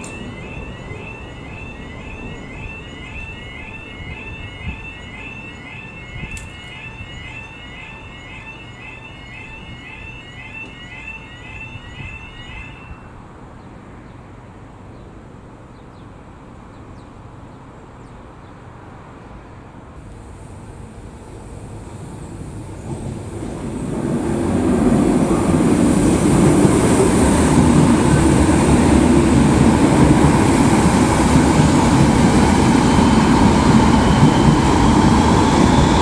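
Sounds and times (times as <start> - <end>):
electronic chirping crossing alarm: 0.0 - 13.2.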